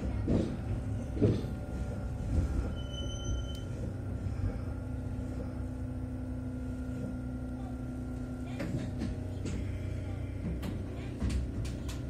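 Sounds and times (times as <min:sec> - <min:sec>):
train clunks: 0:00.0 - 0:05.7, 0:08.2 - 0:12.0
electric train rumbling: 0:00.0 - 0:12.0
steady low hum: 0:00.0 - 0:12.0.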